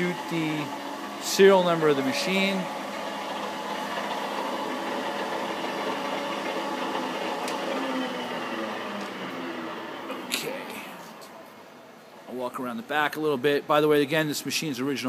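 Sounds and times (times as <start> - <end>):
lathe humming: 0.0 - 11.8.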